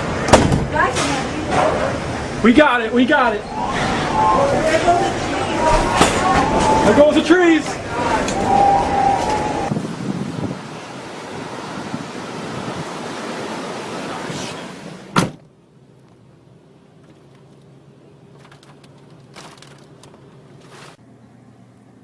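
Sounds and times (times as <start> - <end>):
door slamming shut: 0.3 - 0.7, 15.1 - 15.4
strong wind rushing: 3.1 - 13.8.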